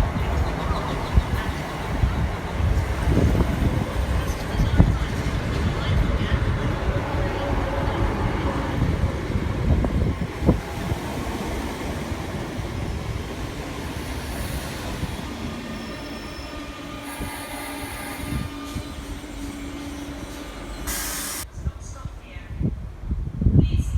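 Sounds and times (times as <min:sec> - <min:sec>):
train rumbling past: 0:00.0 - 0:22.3
high wheel squeals: 0:13.8 - 0:21.4.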